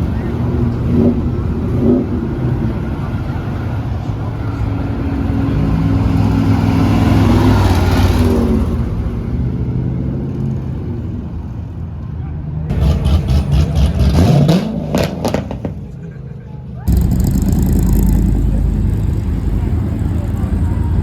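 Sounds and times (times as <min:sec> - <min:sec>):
vehicle engine running: 0:16.8 - 0:21.0
vehicle passing close: 0:16.9 - 0:21.0.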